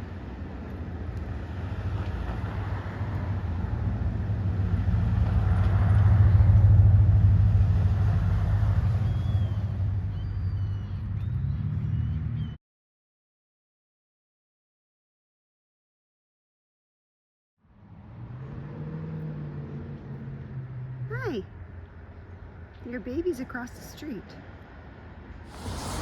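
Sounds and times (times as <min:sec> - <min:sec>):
vehicle passing by: 0:01.2 - 0:12.4, 0:17.8 - 0:21.1, 0:25.5 - 0:26.0.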